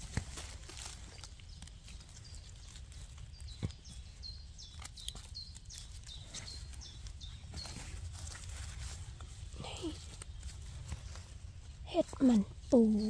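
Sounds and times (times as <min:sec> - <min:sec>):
knife trimming mushroom: 0:04.6 - 0:06.6.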